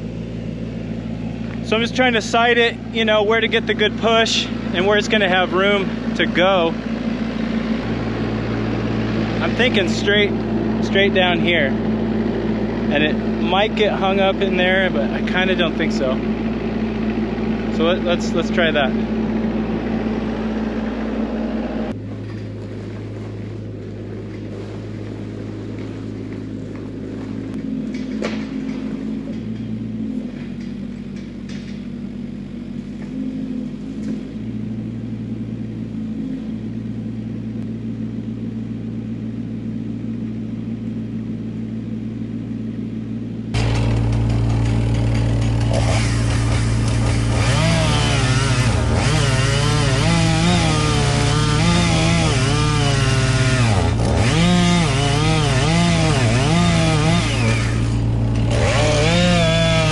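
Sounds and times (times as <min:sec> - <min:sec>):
engine idling: 0:00.0 - 0:59.9
chainsaw cutting wood: 0:02.9 - 0:22.0, 0:43.5 - 0:59.9.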